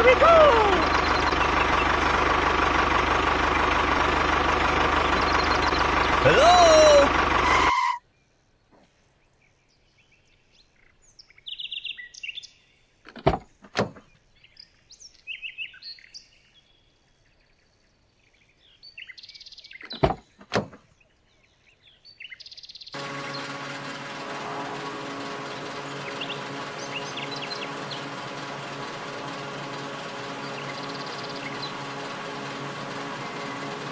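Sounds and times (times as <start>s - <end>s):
small birds chirping: 0.0s - 2.1s, 5.0s - 7.0s, 8.1s - 23.6s, 25.2s - 33.9s
steady machine hum: 23.0s - 33.9s.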